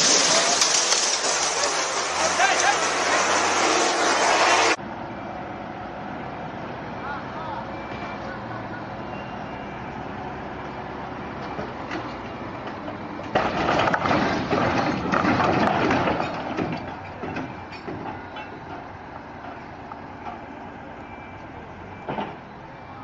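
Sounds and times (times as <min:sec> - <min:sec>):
loud crashing clatter: 0:00.0 - 0:04.8, 0:13.3 - 0:18.2
vehicle engine noise: 0:00.0 - 0:23.0.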